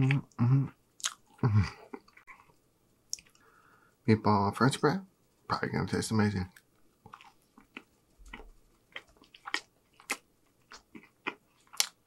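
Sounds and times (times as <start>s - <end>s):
mouth chewing food: 1.0s - 2.5s, 6.5s - 12.0s.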